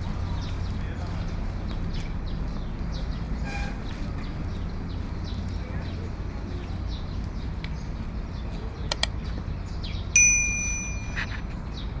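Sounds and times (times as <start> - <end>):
low outdoor rumble: 0.0 - 12.0
birds chirping: 0.1 - 12.0
sharp clicks: 8.9 - 9.2
metallic bell ding: 10.2 - 11.4.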